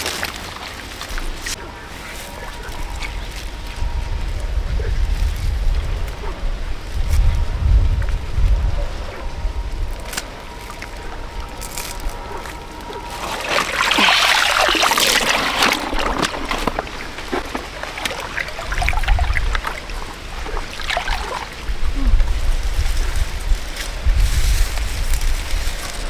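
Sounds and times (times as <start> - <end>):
water splashing and trickling: 0.0 - 1.6, 9.8 - 25.7.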